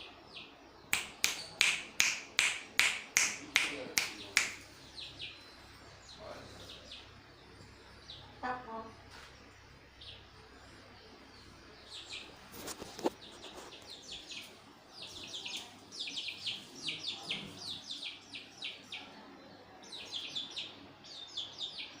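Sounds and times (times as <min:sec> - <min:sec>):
birds chirping: 0:00.0 - 0:22.0
sharp knock: 0:01.0 - 0:04.6.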